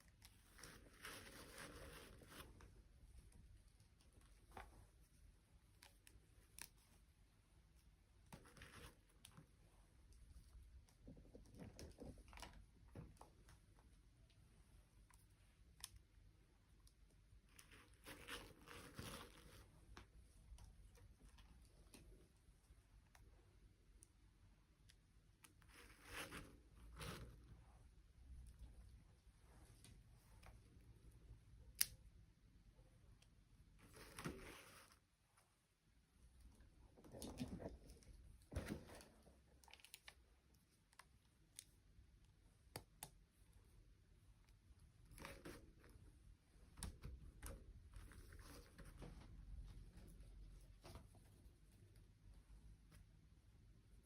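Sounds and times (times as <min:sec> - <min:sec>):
rustling scrapes: 0:00.3 - 0:02.8, 0:33.8 - 0:35.5.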